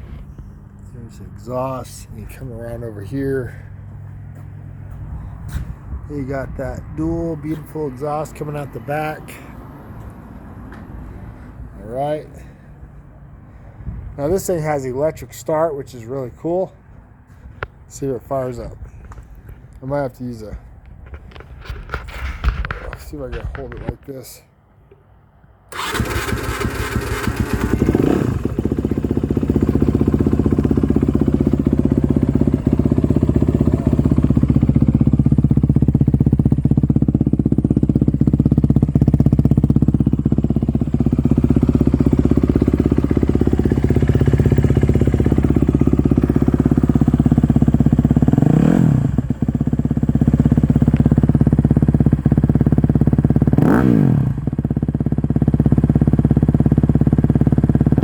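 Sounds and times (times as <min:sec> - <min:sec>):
engine throttle blips: 0:25.7 - 0:52.4
motorcycle engine idling: 0:25.7 - 0:58.0.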